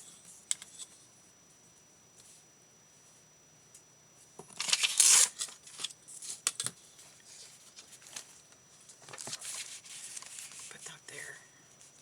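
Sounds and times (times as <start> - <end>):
paper rustling: 9.0 - 10.8.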